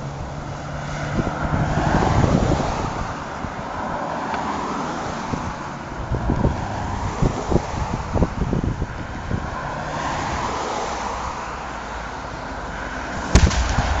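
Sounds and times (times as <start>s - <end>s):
wind buffeting microphone: 0.0s - 10.6s, 13.2s - 14.0s
highway traffic passing: 0.0s - 14.0s
sharp loud knock: 13.4s - 14.0s.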